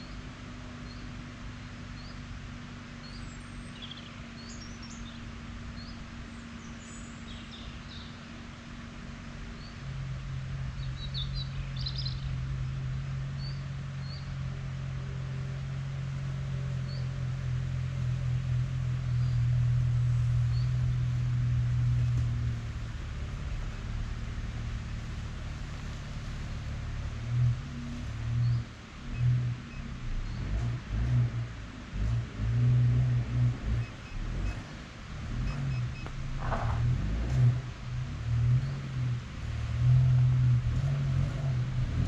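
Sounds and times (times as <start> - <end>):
small birds chirping: 0.0 - 8.6, 9.2 - 9.9, 10.6 - 14.4, 16.7 - 22.3, 28.3 - 30.7
low engine hum: 0.0 - 42.0.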